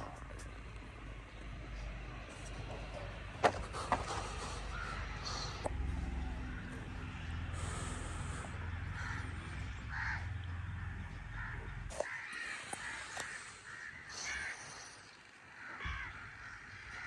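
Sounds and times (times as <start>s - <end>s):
crows cawing: 3.8s - 5.7s, 6.4s - 17.0s.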